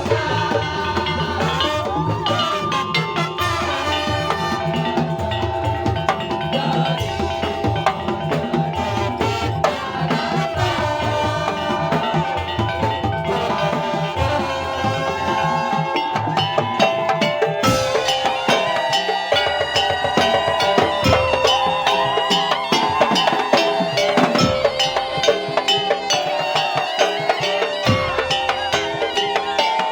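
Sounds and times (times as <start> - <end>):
percussion ensemble music: 0.0 - 29.9.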